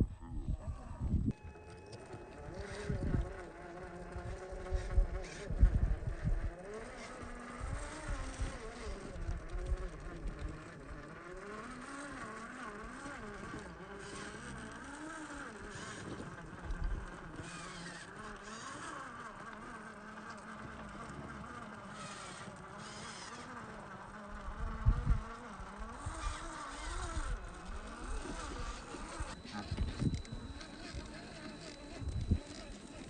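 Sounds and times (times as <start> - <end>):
electric motor and gear whine: 0.0 - 33.0.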